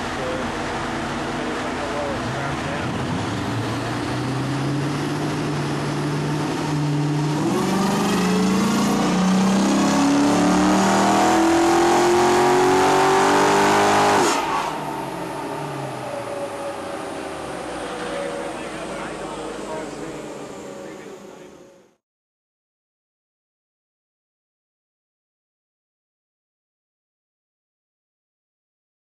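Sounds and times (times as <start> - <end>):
engine at full throttle on dyno: 0.0 - 22.0.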